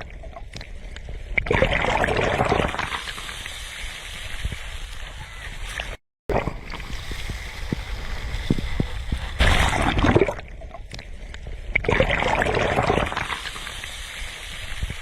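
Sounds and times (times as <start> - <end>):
sea waves washing ashore: 2.6 - 10.4, 12.7 - 15.0.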